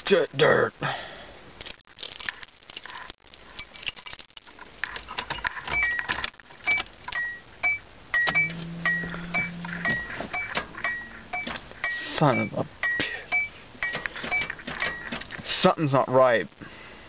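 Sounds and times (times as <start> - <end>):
keys jangling and clicking: 1.6 - 7.2
two-tone electronic chime: 7.2 - 14.0.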